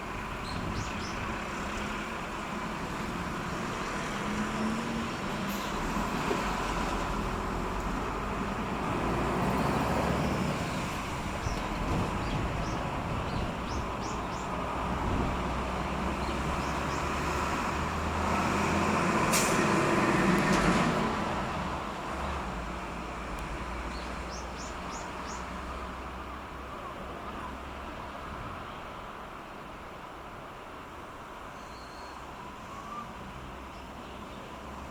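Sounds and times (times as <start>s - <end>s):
heavy road traffic rumble: 0.0s - 34.9s
air brake hiss: 19.3s - 19.8s.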